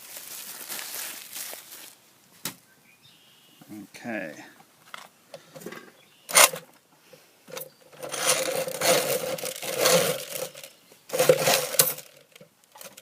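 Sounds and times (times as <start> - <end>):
grinding plates scraping and rattling: 7.5 - 13.0.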